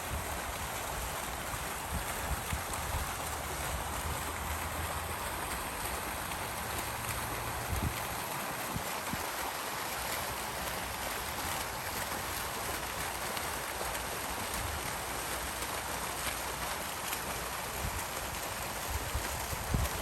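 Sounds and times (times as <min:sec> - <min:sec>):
water fountain splashing: 0:00.0 - 0:20.0.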